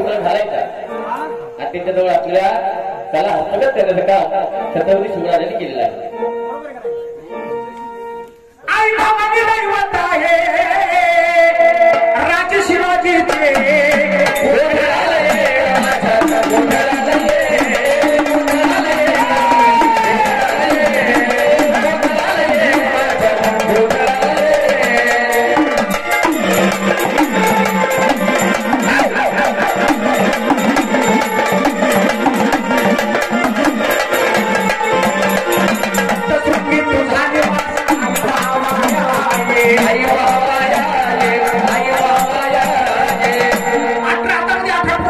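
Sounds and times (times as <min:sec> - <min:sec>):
drums in a fast rhythm: 0:09.0 - 0:45.0
held melody line: 0:12.6 - 0:45.0.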